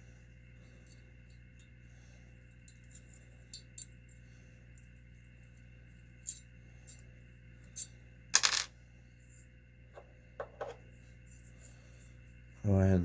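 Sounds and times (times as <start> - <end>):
small metal parts clinking: 6.2 - 7.0, 7.6 - 8.7.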